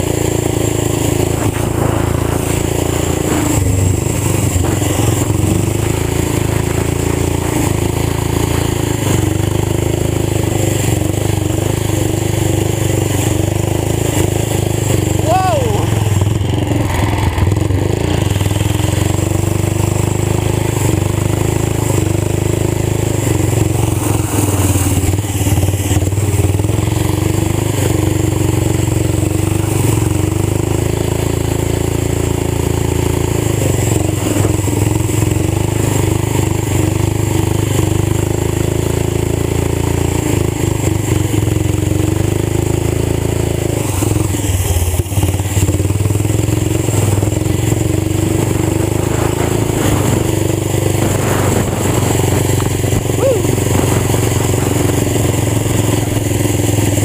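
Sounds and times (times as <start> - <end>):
tractor engine running loud: 0.0 - 57.0.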